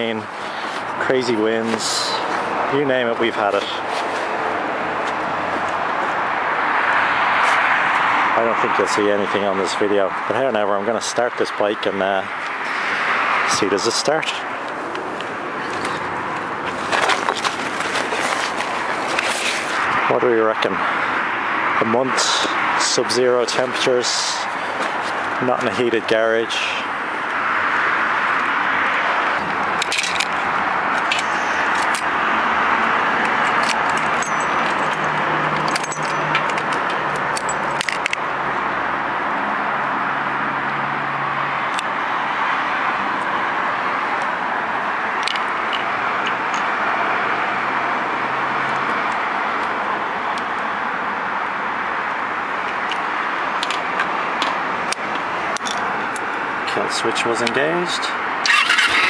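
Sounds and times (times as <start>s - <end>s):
keys jangling: 33.3s - 38.1s.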